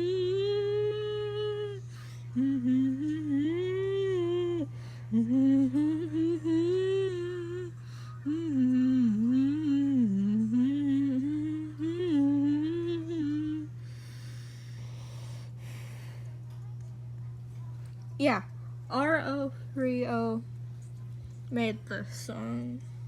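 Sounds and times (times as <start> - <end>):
person humming a wavering tune: 0.0 - 15.9
low background hum: 0.0 - 23.0.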